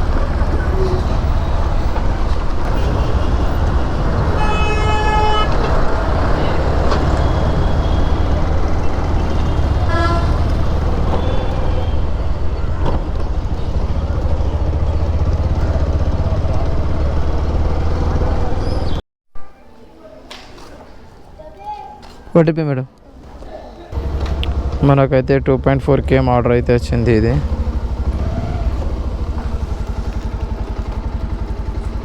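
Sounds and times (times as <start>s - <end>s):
motorcycle engine rumble: 0.0s - 19.0s, 23.3s - 32.0s
vehicle horn honking: 2.6s - 12.9s.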